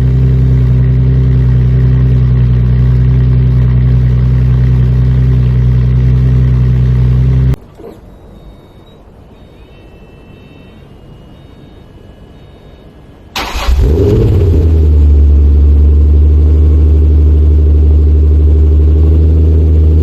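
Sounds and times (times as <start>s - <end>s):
car engine idling: 0.0s - 8.8s, 13.3s - 20.0s
faint high tones: 5.4s - 13.8s.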